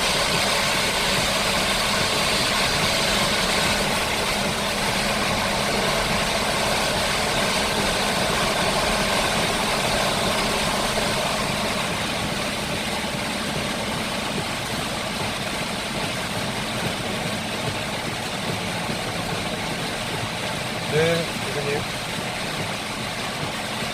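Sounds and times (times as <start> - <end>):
heavy rain falling: 0.0 - 23.9.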